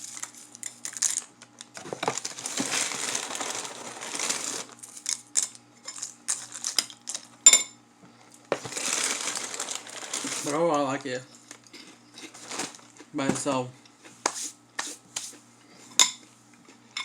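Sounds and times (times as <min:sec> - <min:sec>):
cereal poured into a bowl: 0:02.4 - 0:04.8.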